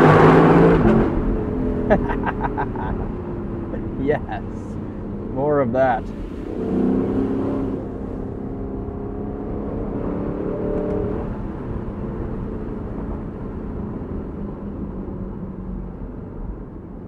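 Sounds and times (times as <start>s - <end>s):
car engine accelerating: 0.0s - 16.6s
road and wind noise: 0.0s - 17.0s.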